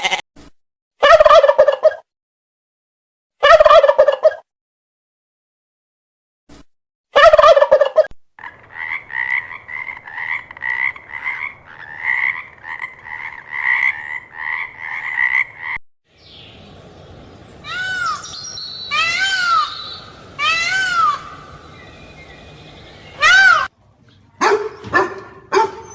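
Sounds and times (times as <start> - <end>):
fowl calling: 17.6 - 25.9.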